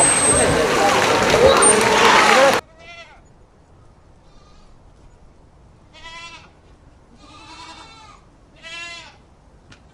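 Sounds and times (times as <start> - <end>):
goat or sheep bleating: 5.9 - 6.6, 7.2 - 9.2.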